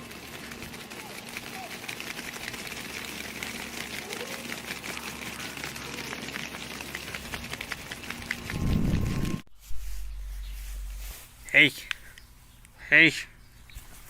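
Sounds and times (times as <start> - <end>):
steady low hum: 6.8 - 13.7
low rumble: 8.2 - 11.2.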